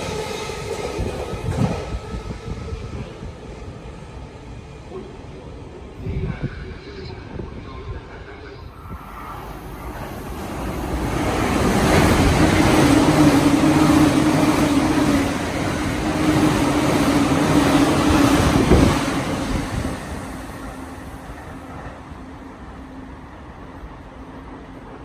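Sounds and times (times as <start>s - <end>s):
electric train passing: 0.0s - 25.0s
train knock: 11.6s - 20.1s.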